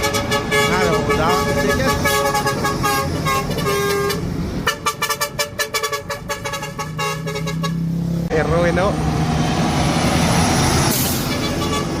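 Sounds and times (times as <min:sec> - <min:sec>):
truck horn honking: 0:00.0 - 0:08.0, 0:10.9 - 0:12.0.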